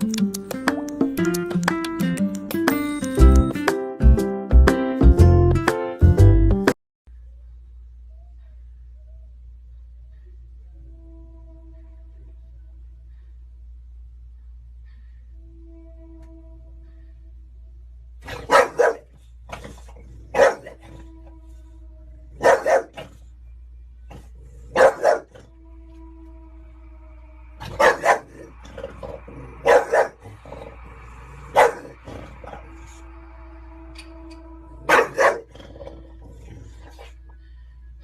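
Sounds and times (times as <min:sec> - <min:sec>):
dog barking: 0:18.2 - 0:21.0, 0:22.3 - 0:23.2, 0:24.1 - 0:25.5, 0:27.6 - 0:28.5, 0:29.6 - 0:30.2, 0:31.5 - 0:32.0, 0:34.8 - 0:35.5.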